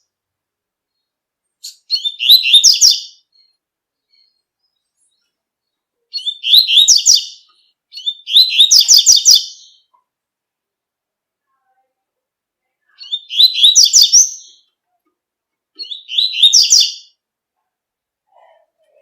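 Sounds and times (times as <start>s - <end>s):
bird singing high chirping notes: 1.6s - 3.6s, 6.1s - 9.9s, 13.0s - 14.7s, 15.8s - 17.2s.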